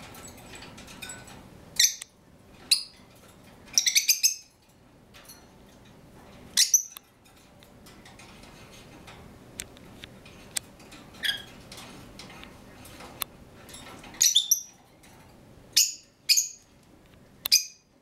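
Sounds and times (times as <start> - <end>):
pet birds high-pitched calls: 1.8 - 3.1, 3.7 - 4.6, 6.5 - 7.1, 11.1 - 11.6, 14.2 - 14.8, 15.7 - 16.8, 17.4 - 18.0.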